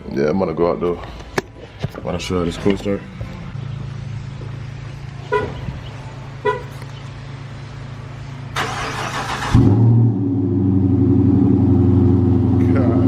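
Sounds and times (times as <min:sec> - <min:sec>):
car horn chirps: 0:05.3 - 0:05.7, 0:06.4 - 0:06.8
car engine starting loudly: 0:08.5 - 0:13.0.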